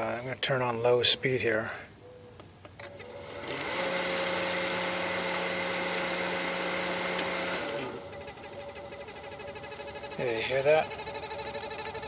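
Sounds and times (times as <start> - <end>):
pool pump motor humming: 2.8 - 12.0.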